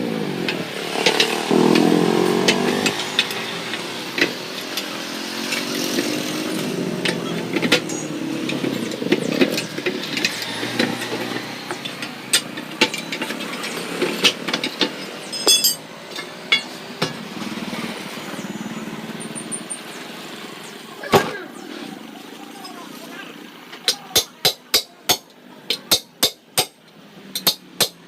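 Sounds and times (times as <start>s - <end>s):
hand tools knocking and clicking: 7.0s - 17.2s, 23.8s - 28.0s
metal clattering: 7.1s - 16.7s.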